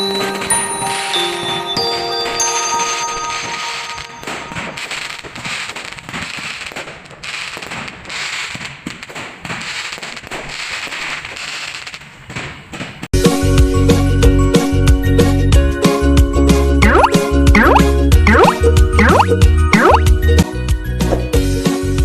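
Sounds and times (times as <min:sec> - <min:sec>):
fireworks crackling and popping: 0:00.0 - 0:13.1.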